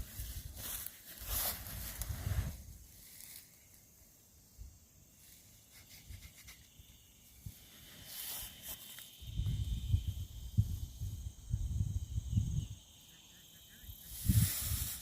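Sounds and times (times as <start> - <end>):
footsteps in dry leaves: 0.0 - 3.4
insects chirping: 0.0 - 15.0.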